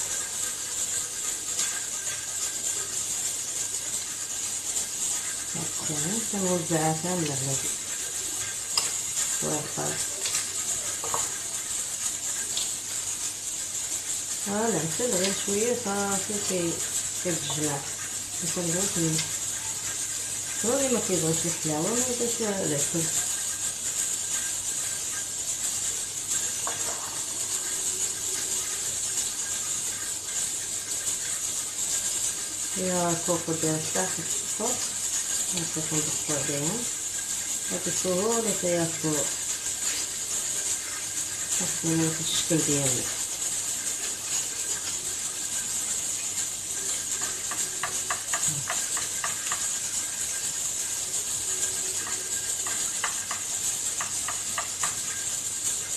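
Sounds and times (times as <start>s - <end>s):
high-pitched hiss: 0.0s - 55.9s.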